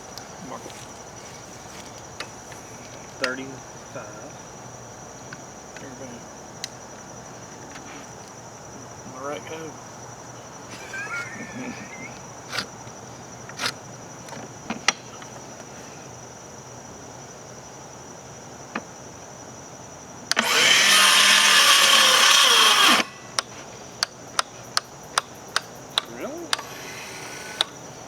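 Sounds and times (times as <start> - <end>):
power saw cutting wood: 20.3 - 23.4, 26.5 - 27.8.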